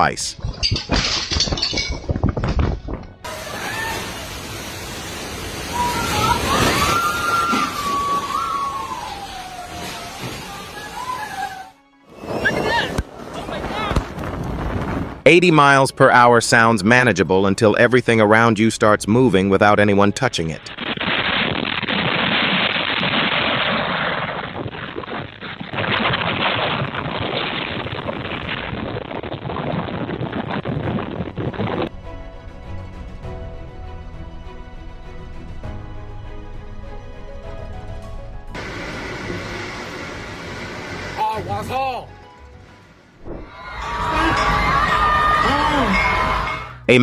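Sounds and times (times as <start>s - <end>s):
strong wind with whistling howl: 5.4s - 15.3s, 23.2s - 31.9s.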